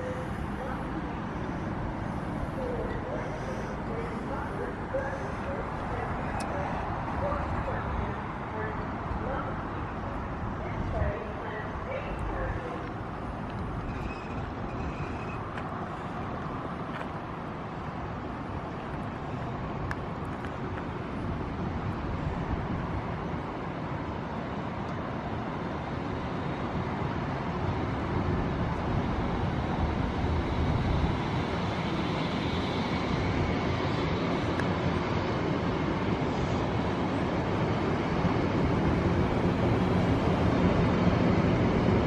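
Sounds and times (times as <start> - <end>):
train rumbling: 0.0 - 21.5.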